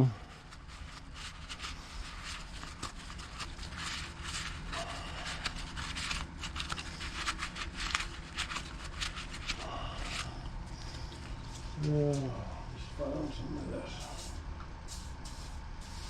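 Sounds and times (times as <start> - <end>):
steady low hum: 0.0 - 16.0
hands scraping and rubbing part: 0.4 - 10.4.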